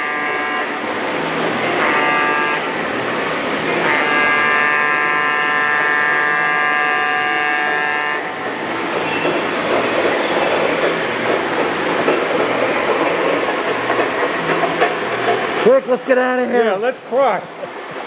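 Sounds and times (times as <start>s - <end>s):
model train horn chord: 1.6s - 2.7s, 3.8s - 8.3s
model train wheels clattering on track: 8.8s - 16.2s.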